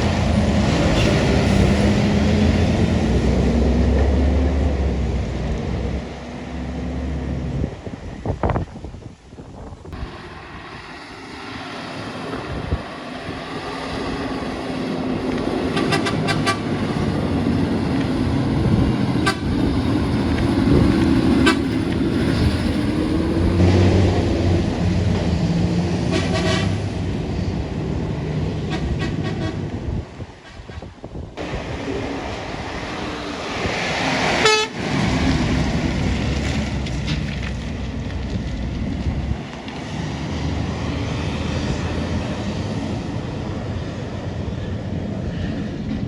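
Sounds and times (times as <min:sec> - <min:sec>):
heavy truck engine: 0:00.0 - 0:46.0
truck horn toots: 0:15.7 - 0:17.0, 0:19.2 - 0:19.8, 0:21.4 - 0:21.8, 0:26.0 - 0:26.9, 0:28.6 - 0:29.8, 0:34.4 - 0:34.9.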